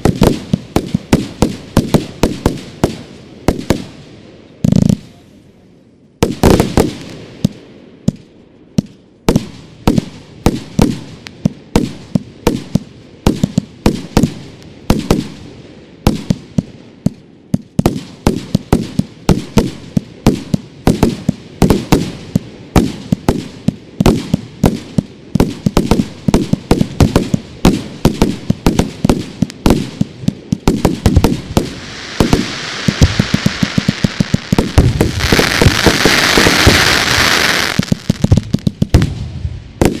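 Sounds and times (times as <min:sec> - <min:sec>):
firework bangs: 0:00.0 - 0:04.0, 0:06.2 - 0:08.2, 0:17.8 - 0:40.0
firework crackling hiss: 0:27.8 - 0:40.0.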